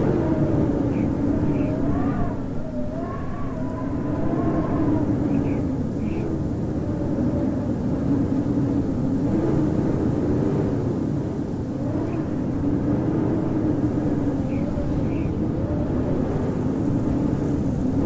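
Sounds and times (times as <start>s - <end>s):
wind howling: 0.0s - 18.0s.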